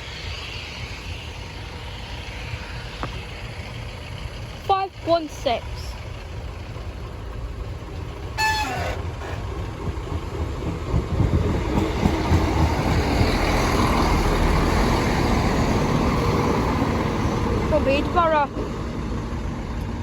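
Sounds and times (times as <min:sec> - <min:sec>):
train rumbling past: 0:00.0 - 0:20.0.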